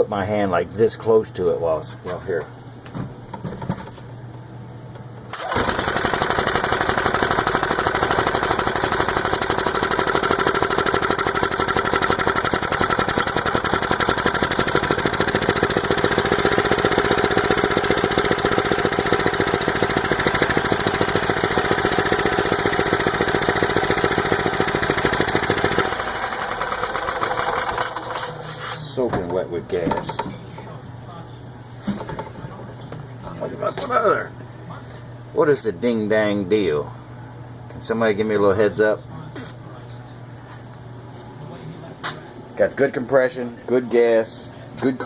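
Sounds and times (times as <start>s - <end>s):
golf cart engine running fast: 5.4s - 28.2s.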